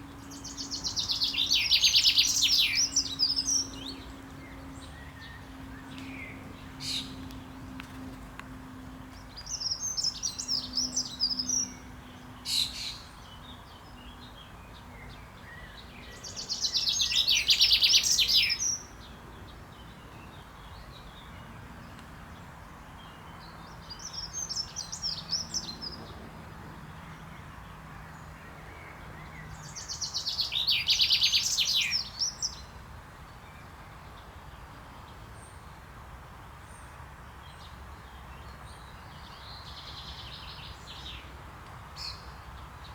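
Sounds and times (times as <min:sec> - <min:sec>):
chaffinch singing: 0:00.0 - 0:07.2, 0:09.2 - 0:19.1, 0:29.2 - 0:32.8
faint bird song: 0:00.0 - 0:42.9.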